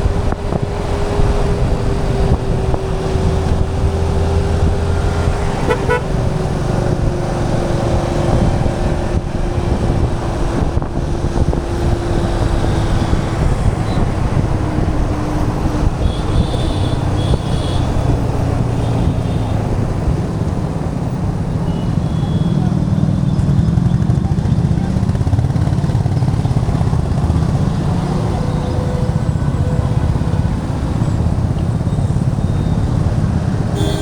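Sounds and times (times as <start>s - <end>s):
motorcycle engine running: 0.0s - 20.4s, 21.2s - 34.0s
wind on microphone: 0.0s - 21.7s.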